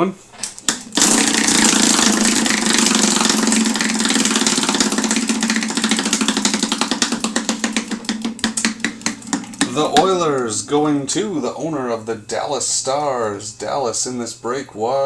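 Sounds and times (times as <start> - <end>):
prize wheel ticking: 0.4 - 11.5.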